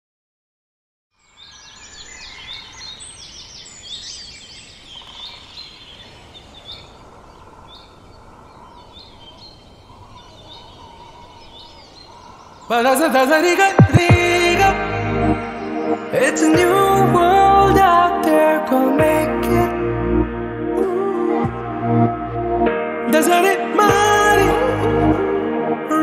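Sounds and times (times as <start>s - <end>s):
birds chirping and calling: 1.2s - 18.9s.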